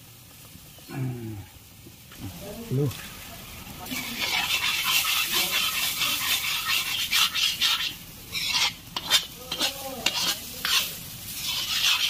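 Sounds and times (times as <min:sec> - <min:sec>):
tomatoes sizzling in a pan: 0:00.0 - 0:12.0
wooden spatula scraping a pan: 0:03.8 - 0:12.0.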